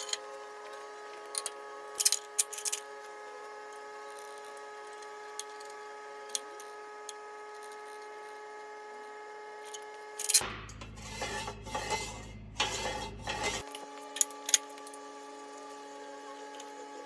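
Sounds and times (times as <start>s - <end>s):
steady tonal hum: 3.4s - 15.0s.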